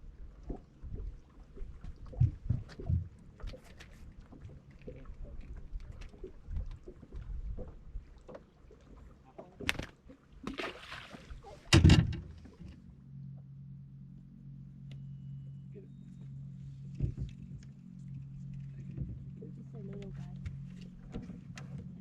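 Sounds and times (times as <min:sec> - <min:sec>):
steady low hum: 0:11.3 - 0:22.0.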